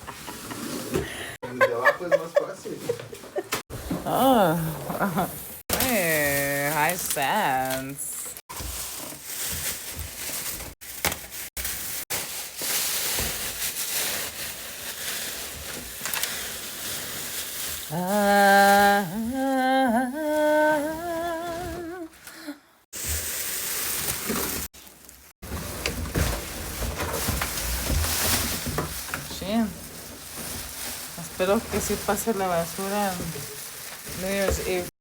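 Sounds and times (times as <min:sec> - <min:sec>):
woman humming: 0:03.9 - 0:06.2, 0:17.9 - 0:22.7
packaging rustling: 0:05.7 - 0:19.2, 0:23.0 - 0:34.9.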